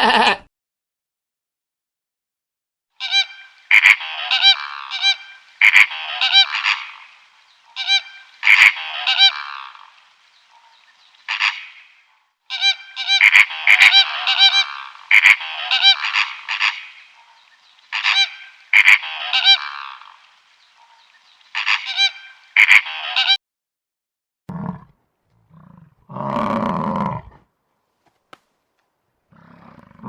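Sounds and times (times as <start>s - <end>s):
geese honking: 3.0s - 10.0s, 11.3s - 11.9s, 12.5s - 17.2s, 17.9s - 20.3s, 21.6s - 23.4s.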